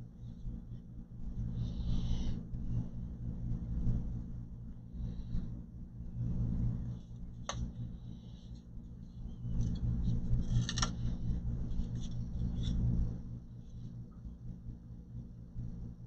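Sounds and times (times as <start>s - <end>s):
steady low hum: 0.0s - 16.0s
rustling and scraping of parts: 8.4s - 12.9s.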